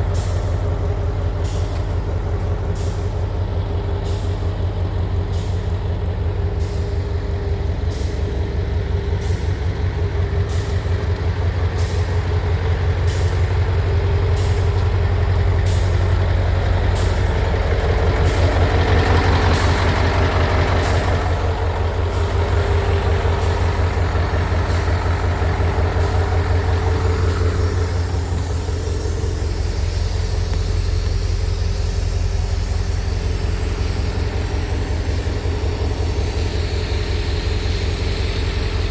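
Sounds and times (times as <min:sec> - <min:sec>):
diesel truck engine humming: 0:00.0 - 0:38.9
hissing noise: 0:20.7 - 0:38.9.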